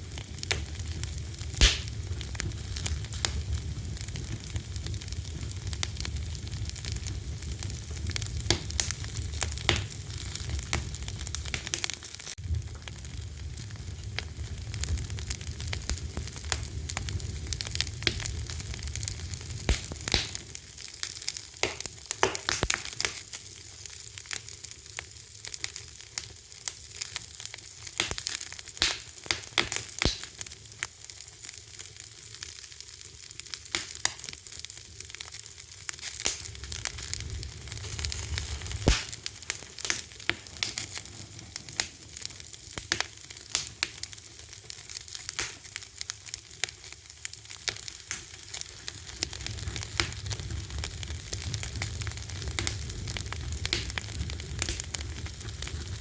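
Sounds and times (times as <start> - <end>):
low rumble of flames: 0.0 - 29.4, 31.5 - 56.0
fire crackling and popping: 0.0 - 56.0
steady hiss: 1.5 - 2.5.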